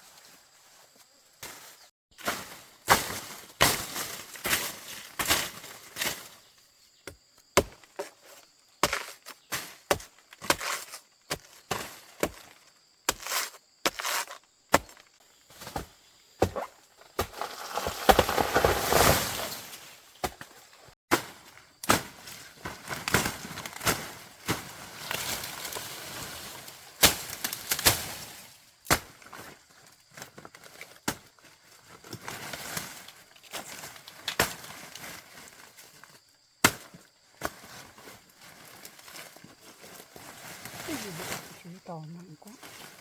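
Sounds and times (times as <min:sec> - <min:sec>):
scraping and rustling: 0:17.1 - 0:19.9.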